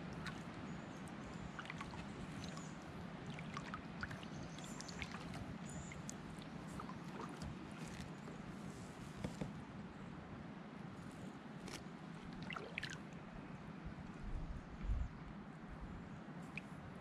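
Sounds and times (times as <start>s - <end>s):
paddle dipping into water: 0.0s - 0.6s, 1.3s - 9.6s, 11.6s - 13.1s
small clicks and splashes: 0.0s - 8.4s, 11.6s - 13.0s, 16.5s - 16.8s
water dripping off paddle: 0.1s - 0.5s, 1.5s - 8.2s.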